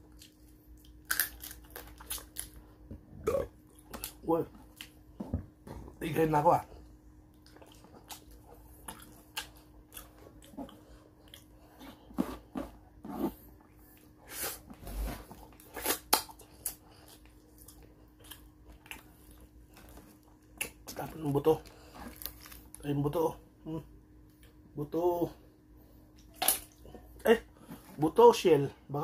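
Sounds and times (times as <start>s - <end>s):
person chewing: 0.0s - 5.4s, 7.2s - 22.8s
faint steady hum: 0.0s - 29.0s.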